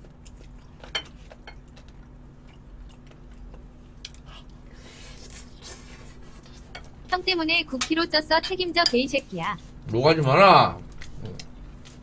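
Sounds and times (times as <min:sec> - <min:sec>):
person chewing: 0:00.0 - 0:07.0.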